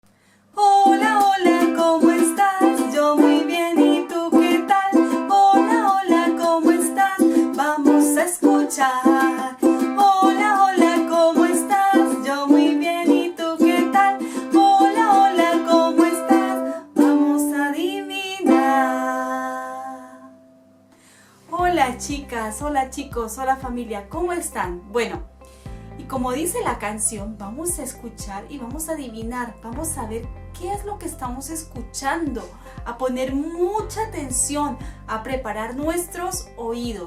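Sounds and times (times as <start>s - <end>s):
person singing: 0.6s - 20.4s
strummed string instrument: 0.8s - 20.8s.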